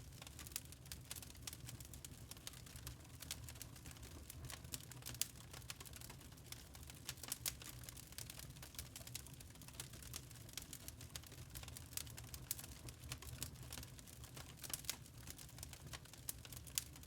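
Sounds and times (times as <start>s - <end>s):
log fire crackling and popping: 0.0s - 17.0s
low rumble of flame: 0.0s - 17.0s.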